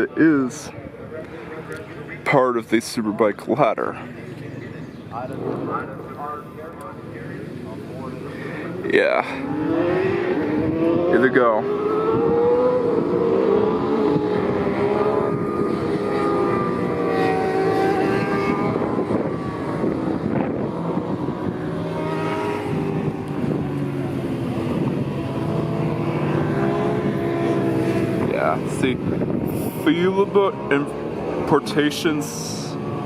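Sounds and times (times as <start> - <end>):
racing motorcycles at high revs: 6.8 - 33.0.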